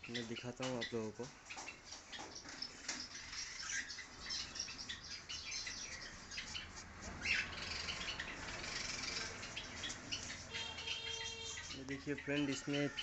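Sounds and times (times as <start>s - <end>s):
birds chirping and chattering: 0.0s - 13.0s
loud bird squawk: 6.6s - 13.0s.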